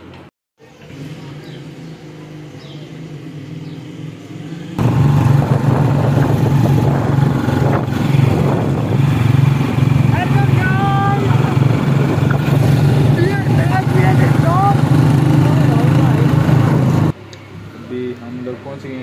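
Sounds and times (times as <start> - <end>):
motorcycle engine running: 0.6 - 17.2
rushing wind noise: 4.8 - 17.2.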